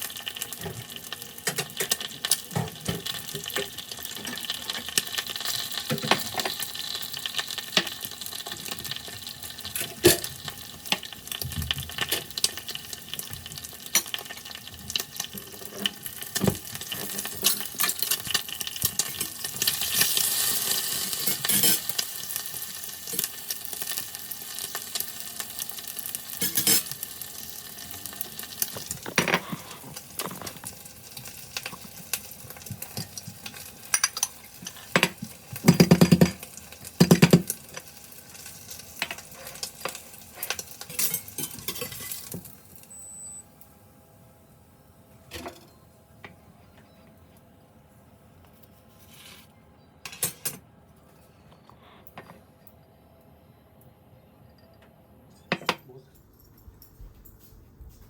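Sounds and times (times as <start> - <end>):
rice sizzling in a pan: 0.0 - 43.9.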